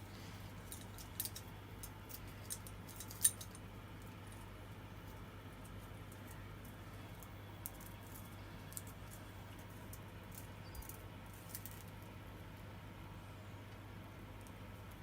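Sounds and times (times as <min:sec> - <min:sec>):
steady low hum: 0:00.0 - 0:15.0
hands handling small parts: 0:00.6 - 0:03.6.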